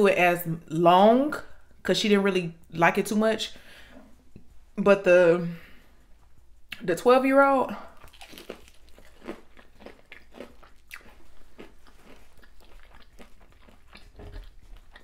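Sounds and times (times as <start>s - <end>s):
person crunching food: 7.9s - 15.0s.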